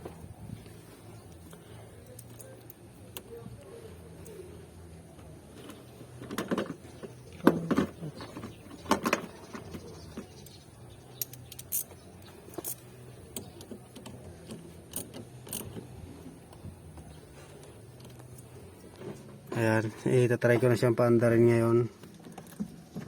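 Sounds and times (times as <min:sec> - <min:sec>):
hand tools clinking and rattling: 0:05.5 - 0:16.3.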